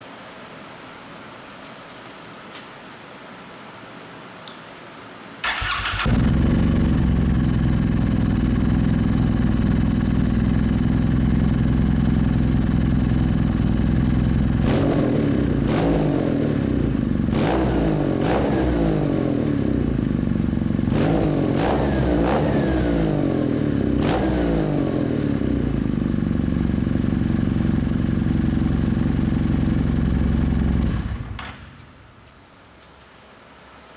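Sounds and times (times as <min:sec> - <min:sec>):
motorcycle engine revving and idling: 0:05.5 - 0:31.4.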